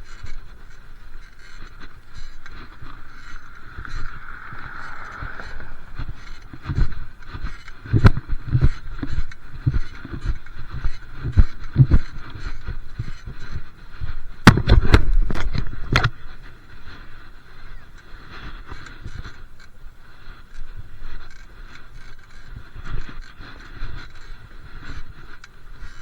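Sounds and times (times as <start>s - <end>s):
wind buffeting microphone: 0.0s - 26.0s
sharp knocks and rattles: 4.8s - 13.6s, 14.4s - 16.1s.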